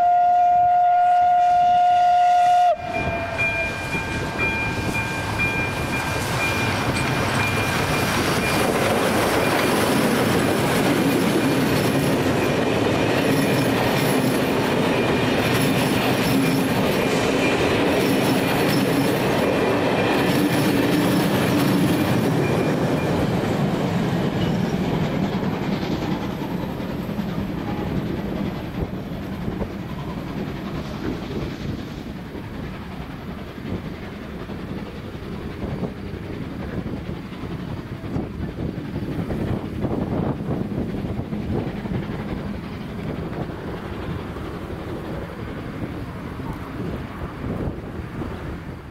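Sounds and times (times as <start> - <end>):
held horn-like tone: 0.0 - 6.7
loud rumbling rush: 2.2 - 48.9.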